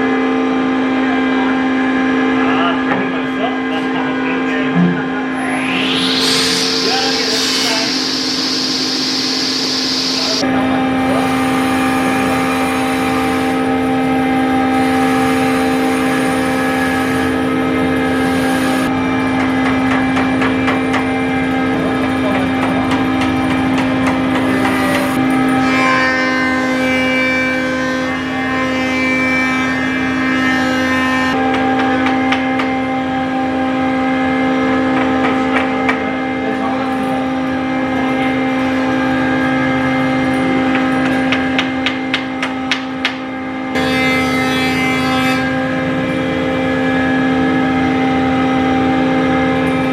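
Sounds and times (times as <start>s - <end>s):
woodworking machine humming: 4.6s - 49.9s.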